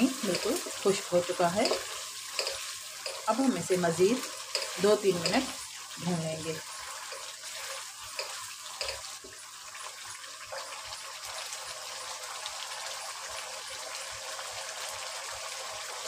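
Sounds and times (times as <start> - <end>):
food sizzling in oil: 0.0 - 16.0
wooden spatula scraping and tapping: 1.6 - 5.6, 7.0 - 9.4.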